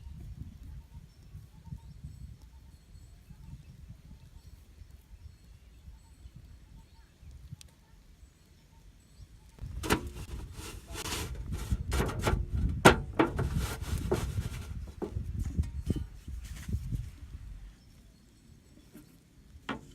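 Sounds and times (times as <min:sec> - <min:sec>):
sharp knocks and scrapes: 0:09.6 - 0:16.8, 0:18.8 - 0:19.9.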